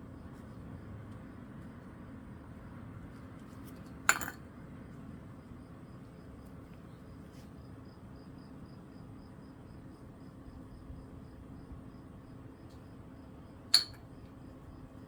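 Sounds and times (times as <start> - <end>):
faint steady hum: 0.0 - 15.0
sharp clink: 13.7 - 14.0.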